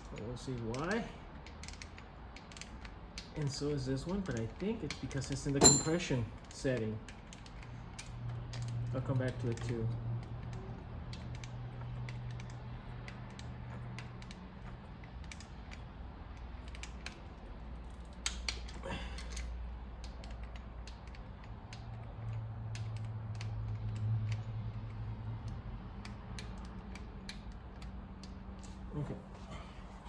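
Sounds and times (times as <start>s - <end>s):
metal tools clicking and tapping: 0.0s - 28.9s.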